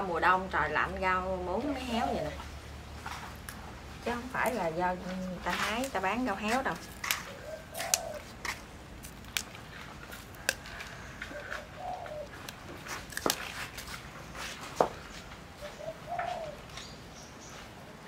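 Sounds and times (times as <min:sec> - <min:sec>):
sharp clicks and snaps: 0:07.0 - 0:10.7
bird cooing: 0:07.2 - 0:08.4, 0:10.4 - 0:12.5, 0:15.6 - 0:17.0.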